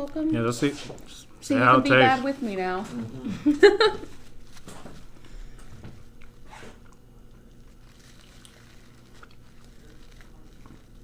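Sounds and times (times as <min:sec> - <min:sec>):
low background hum: 0:00.0 - 0:11.0
chewing chicken wing: 0:06.1 - 0:11.0.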